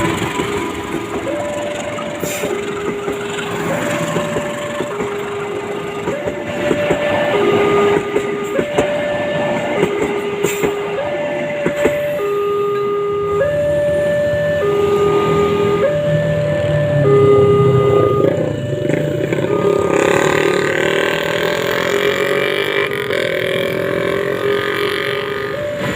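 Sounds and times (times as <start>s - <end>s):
passing traffic: 0.0s - 25.9s
two-tone crossing alarm: 0.0s - 25.9s.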